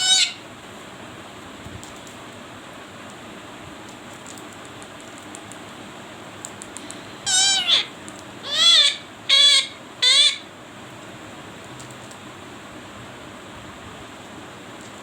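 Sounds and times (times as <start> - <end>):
parrot calling loudly: 0.0 - 0.4, 7.2 - 10.5.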